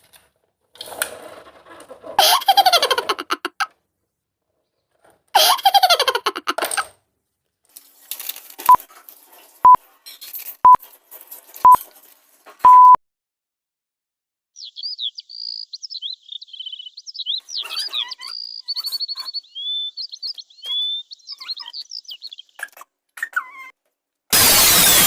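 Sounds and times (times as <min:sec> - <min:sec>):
countdown beeps: 0:12.7 - 0:13.0
cartoon falling pitch with rattle: 0:24.3 - 0:25.0.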